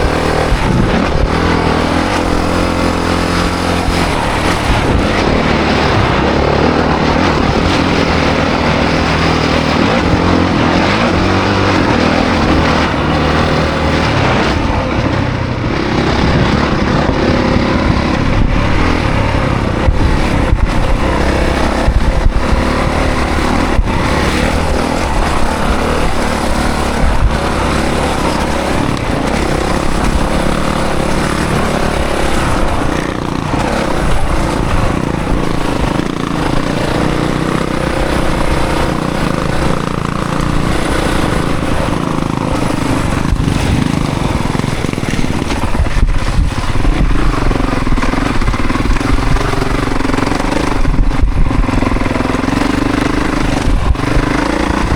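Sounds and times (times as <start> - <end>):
dirt bike engine revving: 0.0 - 54.9
steady rushing noise: 0.0 - 54.9.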